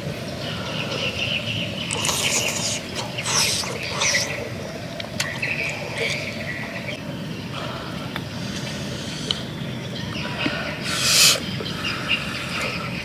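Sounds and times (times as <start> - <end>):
chewing and slurping: 1.9 - 6.3.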